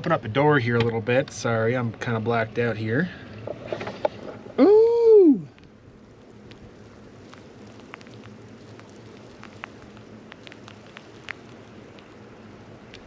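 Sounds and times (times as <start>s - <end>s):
soft hiss of falling snow: 4.6s - 13.0s.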